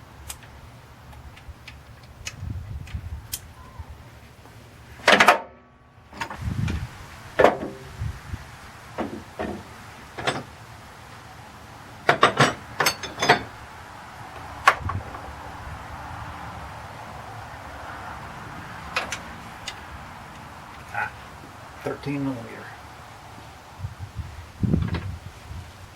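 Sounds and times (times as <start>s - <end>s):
metal tools clanking and knocking: 10.2s - 10.5s, 12.1s - 13.6s
metallic ring: 12.3s - 13.5s.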